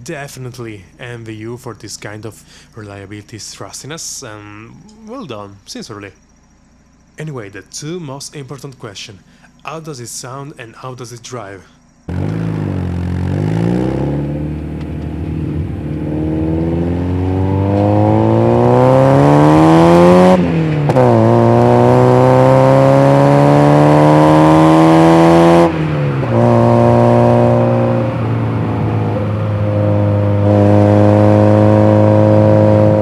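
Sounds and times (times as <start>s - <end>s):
car engine accelerating: 12.1s - 33.0s.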